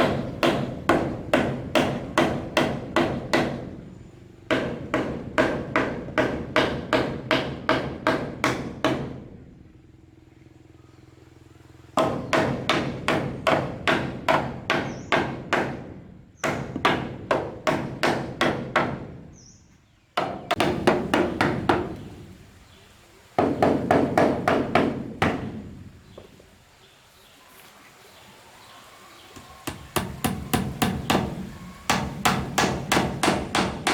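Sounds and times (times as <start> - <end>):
hammer blows on wood: 29.6 - 33.9.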